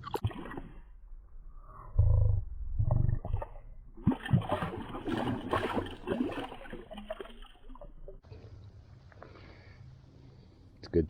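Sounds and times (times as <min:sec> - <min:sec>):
low rumbles: 0:00.8 - 0:04.1
water splashing around wader: 0:03.2 - 0:08.2.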